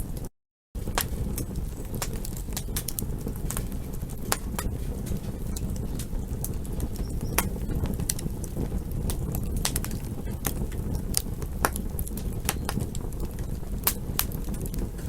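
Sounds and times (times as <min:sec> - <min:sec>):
campfire crackling: 0:00.8 - 0:15.0.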